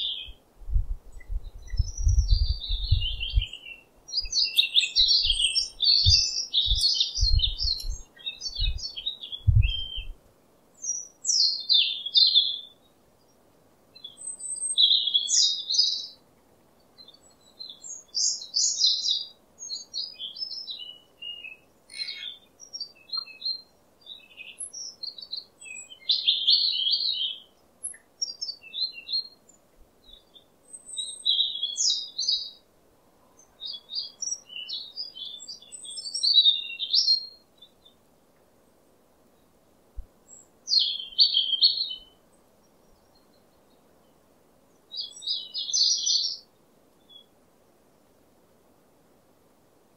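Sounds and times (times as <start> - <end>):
songbirds chirping: 0.0 - 49.9.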